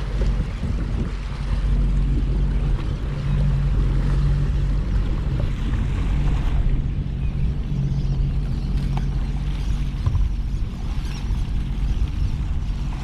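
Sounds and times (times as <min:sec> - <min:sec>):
boat engine humming: 0:00.0 - 0:13.0
water noise: 0:00.0 - 0:13.0
wind: 0:00.0 - 0:13.0.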